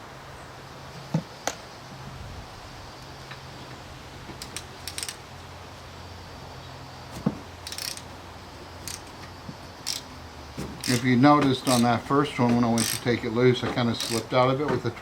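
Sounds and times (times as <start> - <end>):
metal tools clinking: 7.6 - 8.1, 9.8 - 14.9.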